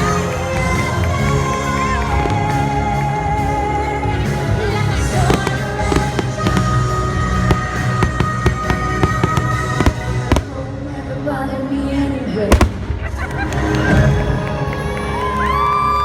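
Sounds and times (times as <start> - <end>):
fireworks banging and crackling: 0.0 - 3.6, 4.3 - 10.8, 12.5 - 14.1
music with long held notes: 0.0 - 16.0.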